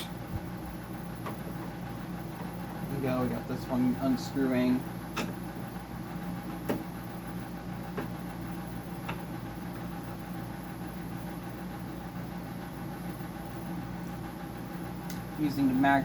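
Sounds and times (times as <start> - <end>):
dehumidifier humming: 0.0 - 16.0.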